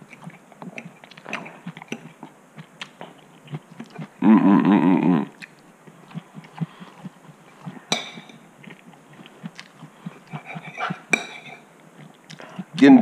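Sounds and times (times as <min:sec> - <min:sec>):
chewing: 0:00.0 - 0:04.2, 0:05.3 - 0:12.9
fork clinking on plate: 0:10.3 - 0:11.6.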